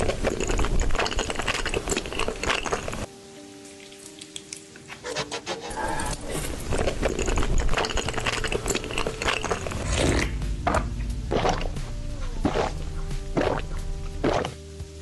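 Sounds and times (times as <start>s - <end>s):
eating clicks and scrapes: 0.0s - 3.1s, 4.0s - 11.8s, 12.4s - 14.6s
low rumble: 9.6s - 14.2s.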